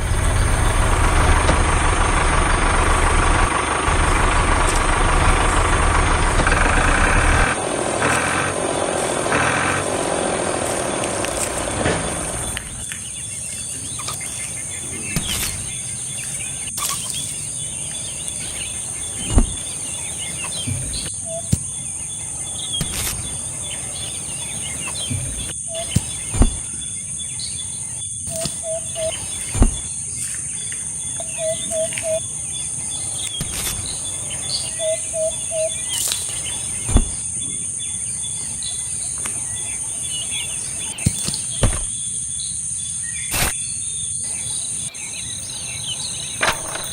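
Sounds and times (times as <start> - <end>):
birds chirping: 0.0 - 46.9
insects buzzing: 0.0 - 46.9
sharp knocks: 26.3 - 26.6, 41.6 - 41.9.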